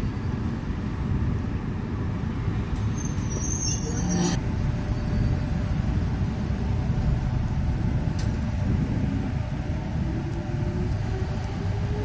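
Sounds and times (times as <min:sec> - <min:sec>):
electric locomotive rumble: 0:00.0 - 0:12.0
high-pitched squeal and hiss: 0:03.0 - 0:06.7.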